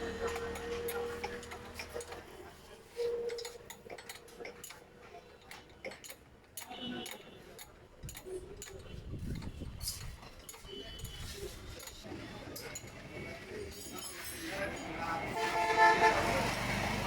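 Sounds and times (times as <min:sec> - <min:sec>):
metallic clicks of tools and parts: 0:00.1 - 0:13.0.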